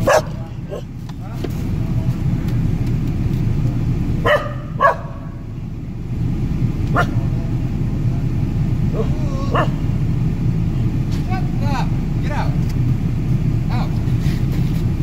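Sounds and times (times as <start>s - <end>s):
dog barking: 0.0s - 0.9s, 4.2s - 5.4s, 6.9s - 7.2s, 9.5s - 9.8s
car rumble: 0.0s - 15.0s.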